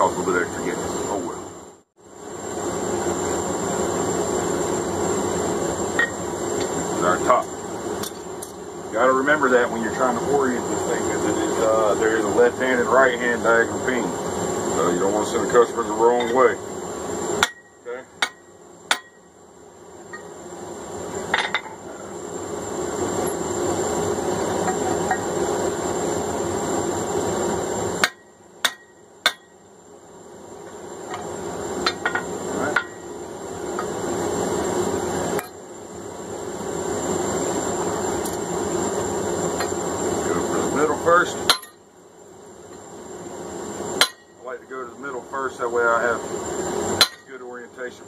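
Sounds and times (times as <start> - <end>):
gas forge roaring: 0.0 - 48.0
sharp metal clinks: 41.5 - 41.8.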